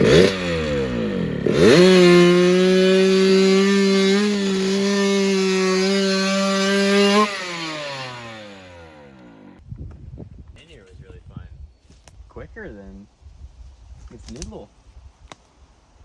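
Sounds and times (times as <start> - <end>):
mini bike engine revving: 0.0 - 9.6.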